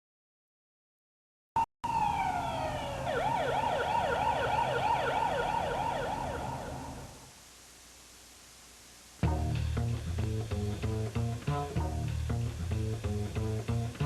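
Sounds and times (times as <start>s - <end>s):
siren wailing and yelping: 1.8s - 7.3s.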